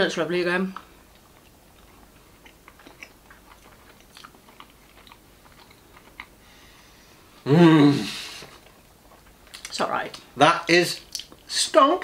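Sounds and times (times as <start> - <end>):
quiet chewing: 0.7 - 7.0, 8.4 - 10.3, 11.0 - 11.5
wet mouth clicks and smacks: 11.1 - 11.5.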